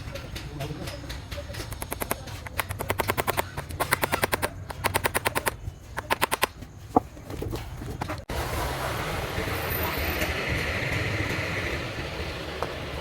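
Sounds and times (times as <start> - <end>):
hammer driving nails: 1.1 - 6.5.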